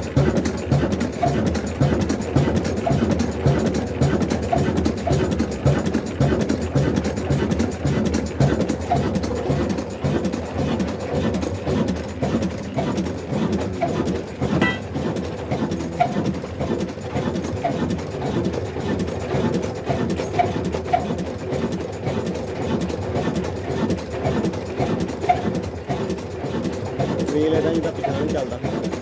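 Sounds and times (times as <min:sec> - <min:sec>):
diesel engine running: 0:09.3 - 0:19.9.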